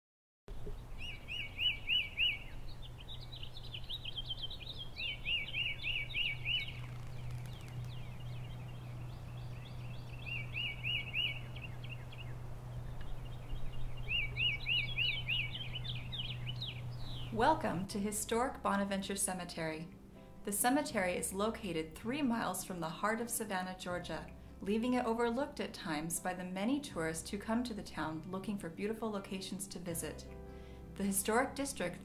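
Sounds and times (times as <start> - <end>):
birds chirping: 0.5 - 17.8
low steady hum: 0.5 - 31.9.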